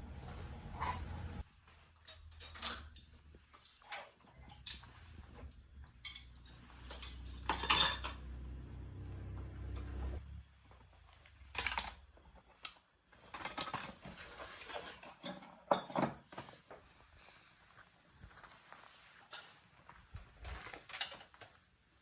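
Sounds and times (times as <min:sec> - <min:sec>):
low hum: 0:00.0 - 0:01.4, 0:05.3 - 0:10.7.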